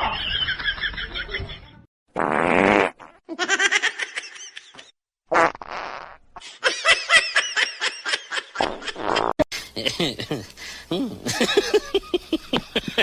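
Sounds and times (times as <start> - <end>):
raspy fart-like blasts: 2.2 - 3.2, 5.3 - 6.2, 8.6 - 9.4.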